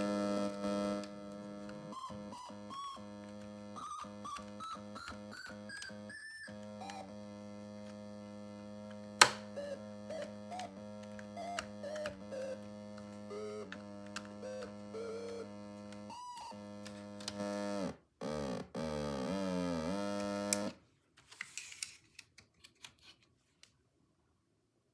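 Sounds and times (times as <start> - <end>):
swooping pitch glides: 0.0 - 17.7
small clicks: 0.0 - 17.9, 19.2 - 23.8
electronic theremin buzz with beeps: 0.0 - 20.7.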